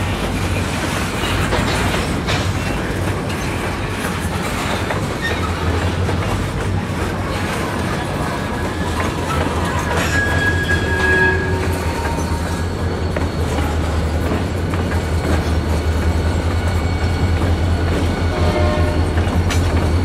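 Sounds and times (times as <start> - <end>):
wheels clicking over rail joints: 0.0 - 20.0
high wheel squeals: 8.1 - 20.0.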